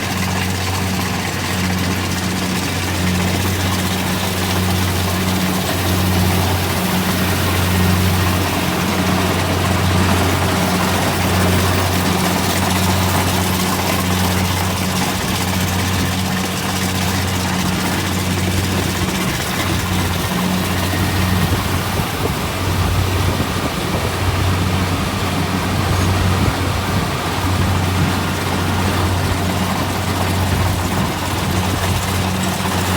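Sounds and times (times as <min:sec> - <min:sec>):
combine harvester running: 0:00.0 - 0:32.9.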